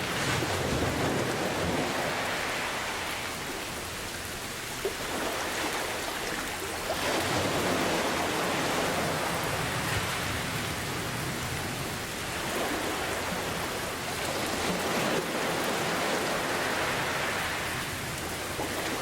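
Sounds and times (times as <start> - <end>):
steady rain falling: 0.0 - 4.9, 7.4 - 19.0
ocean surf: 0.0 - 19.0.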